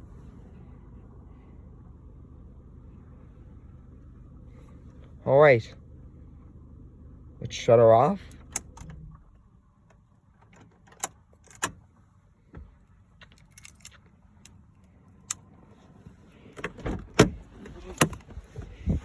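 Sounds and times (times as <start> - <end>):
car keys jangling: 10.4 - 11.8, 13.2 - 14.6.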